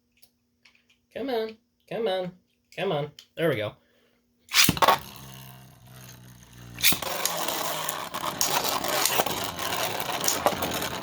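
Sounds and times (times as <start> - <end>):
spinning top launcher rip: 4.5 - 11.0
spinning tops clattering together: 4.5 - 11.0
spinning tops whirring: 4.5 - 11.0.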